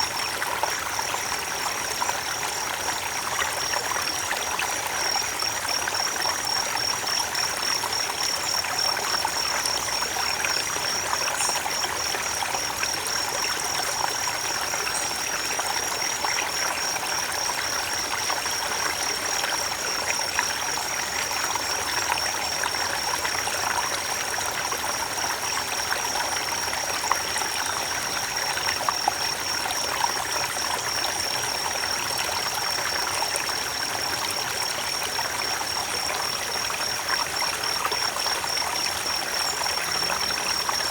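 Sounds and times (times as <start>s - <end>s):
creek running over stones: 0.0s - 40.9s.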